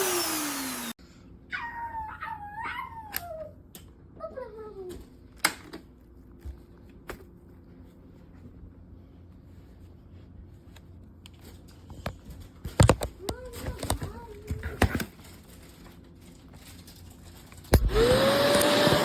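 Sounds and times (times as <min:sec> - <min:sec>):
vacuum motor whine: 0:00.0 - 0:01.0, 0:17.7 - 0:19.0.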